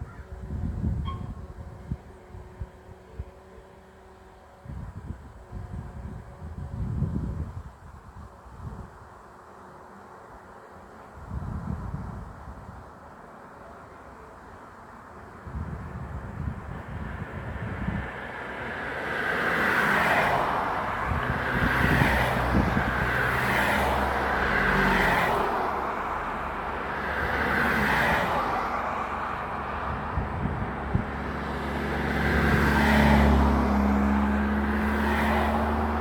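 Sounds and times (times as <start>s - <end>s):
vehicles passing: 9.8s - 36.0s
vehicle pulling away: 17.8s - 36.0s.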